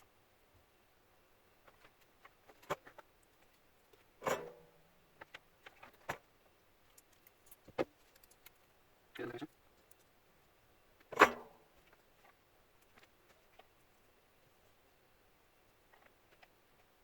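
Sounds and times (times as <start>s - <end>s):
small parts and tools clicking: 6.8s - 8.7s, 9.5s - 10.1s.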